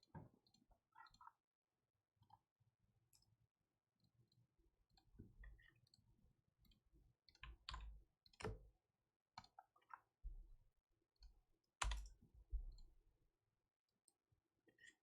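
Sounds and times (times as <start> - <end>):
faint irregular clicks and taps: 0.0 - 1.5, 2.1 - 3.4, 4.0 - 13.1.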